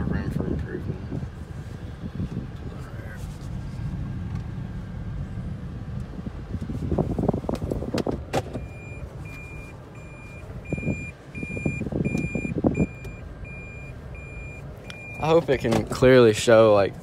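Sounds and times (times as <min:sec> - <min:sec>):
low droning road rumble: 0:00.0 - 0:17.0
reverse warning beep: 0:08.6 - 0:15.4.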